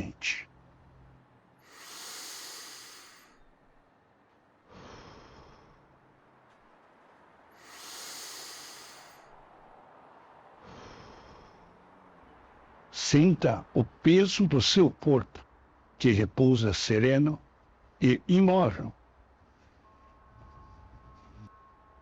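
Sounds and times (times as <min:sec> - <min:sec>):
person breathing deeply: 0:01.6 - 0:03.5, 0:04.7 - 0:06.1, 0:07.5 - 0:09.5, 0:10.6 - 0:12.2.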